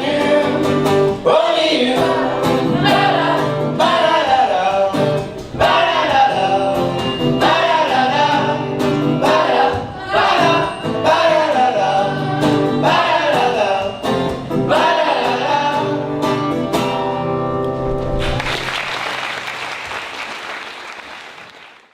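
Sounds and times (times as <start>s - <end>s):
choir singing: 0.0s - 16.2s
applause: 18.2s - 21.9s.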